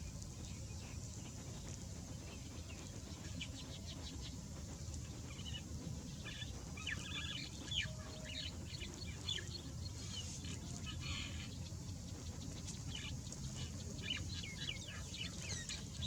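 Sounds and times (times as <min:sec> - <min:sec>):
small birds chirping: 0:05.3 - 0:16.0.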